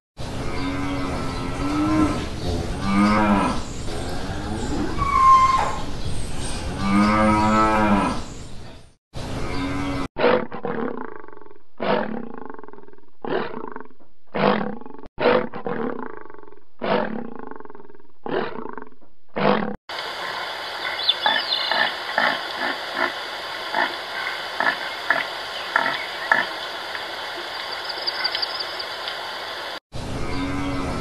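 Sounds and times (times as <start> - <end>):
lion roaring: 9.5 - 19.8.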